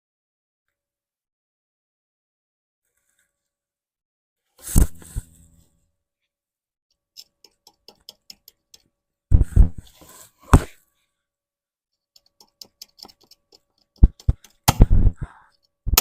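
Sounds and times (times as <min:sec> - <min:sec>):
scratchy scrape: 0:04.6 - 0:05.6, 0:09.4 - 0:10.8.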